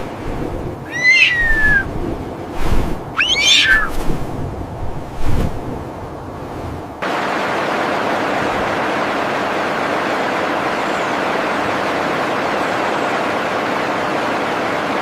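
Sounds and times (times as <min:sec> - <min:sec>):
steady rushing noise: 0:00.0 - 0:07.1.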